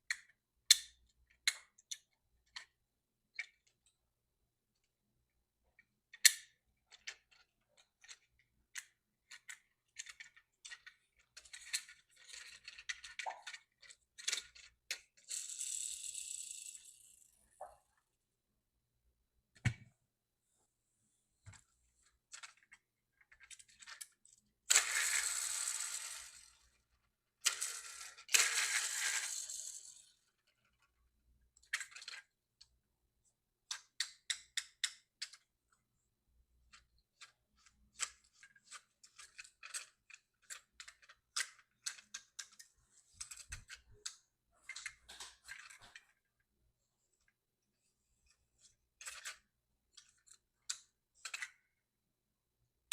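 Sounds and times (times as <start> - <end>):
toy trucks clicking and tapping: 0.0 - 4.0, 5.8 - 17.4, 22.2 - 32.8, 33.6 - 35.7, 36.6 - 46.3, 48.3 - 51.8.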